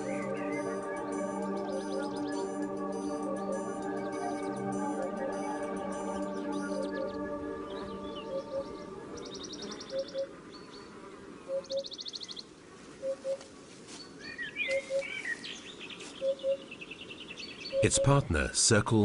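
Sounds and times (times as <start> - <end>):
soft music: 0.0 - 10.4.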